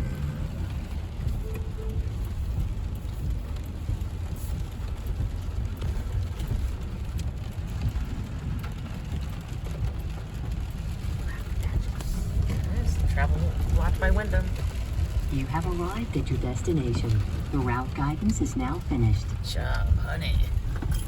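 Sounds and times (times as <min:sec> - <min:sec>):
rain ticking on car: 0:00.0 - 0:21.0
road and engine rumble: 0:00.0 - 0:21.0.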